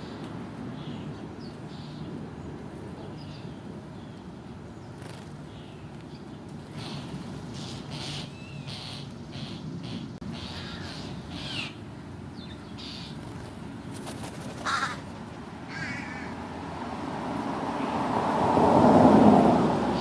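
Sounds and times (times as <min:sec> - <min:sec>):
broad rushing noise: 0:00.0 - 0:20.0
crow cawing: 0:07.9 - 0:11.7, 0:14.6 - 0:15.0, 0:15.7 - 0:16.4.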